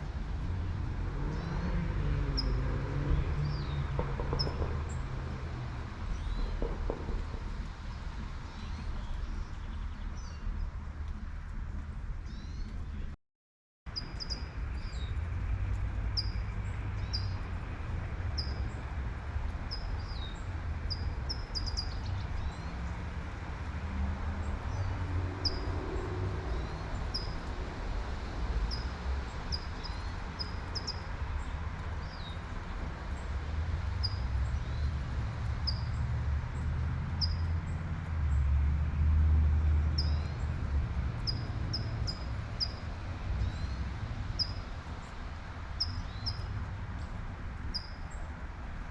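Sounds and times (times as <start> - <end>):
car passing: 0.0 - 8.4, 22.1 - 30.4, 31.1 - 45.8
road traffic rumble: 0.0 - 13.2, 13.9 - 48.9.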